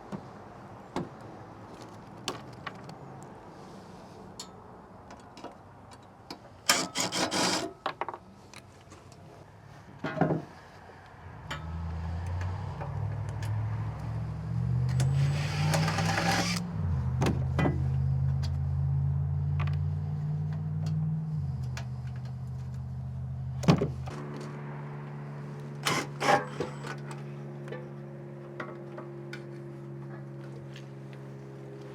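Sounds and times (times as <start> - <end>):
tools scraping and clicking on sheet metal: 6.7 - 7.8, 14.9 - 16.6, 25.8 - 27.1
low hum shifting pitch: 11.2 - 23.5.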